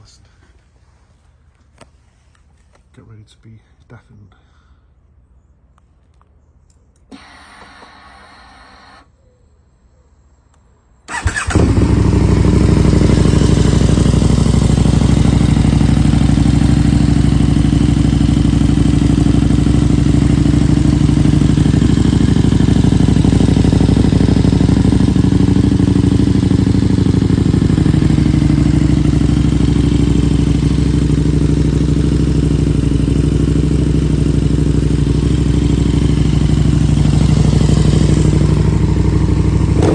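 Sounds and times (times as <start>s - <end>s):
motorcycle engine idling loudly: 11.2s - 39.9s.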